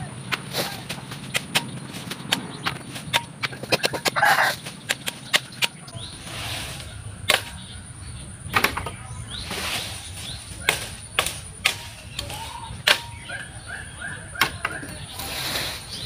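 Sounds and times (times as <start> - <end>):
leaves rustling: 0.0 - 16.0
branches snapping: 6.8 - 7.8, 8.5 - 13.8.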